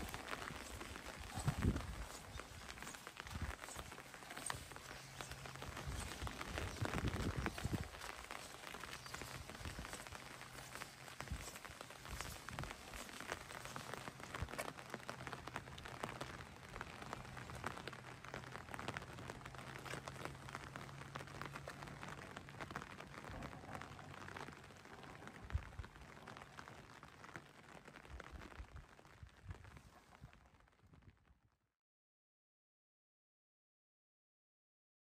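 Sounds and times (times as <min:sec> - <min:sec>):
rain falling steadily: 0:00.0 - 0:31.3.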